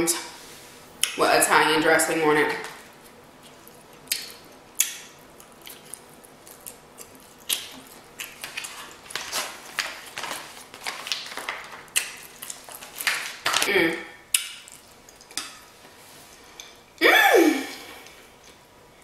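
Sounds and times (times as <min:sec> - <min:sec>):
wet chewing mouth sounds: 0:03.4 - 0:09.0.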